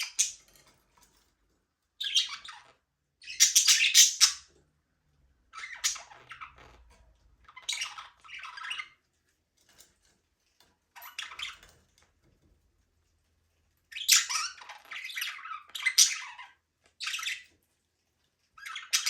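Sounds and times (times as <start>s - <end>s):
budgerigars chirping: 2.0s - 4.5s, 5.5s - 6.6s, 7.5s - 9.0s, 13.9s - 17.5s, 18.6s - 19.0s.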